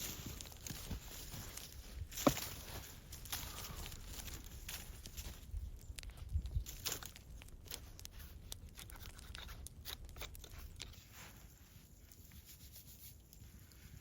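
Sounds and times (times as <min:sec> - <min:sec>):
crunching and scraping: 0:00.0 - 0:14.0.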